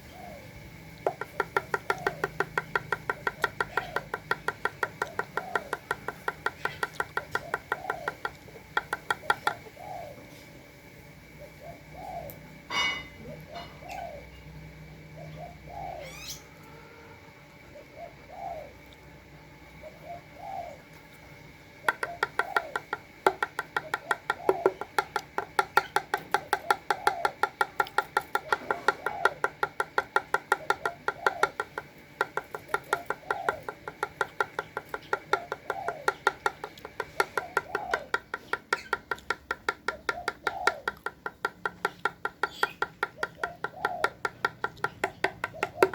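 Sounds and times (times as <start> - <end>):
dove cooing: 0.0 - 10.5, 11.2 - 18.8, 19.8 - 20.9, 21.7 - 45.9
beak pecking at feed: 1.0 - 9.6, 21.8 - 45.9.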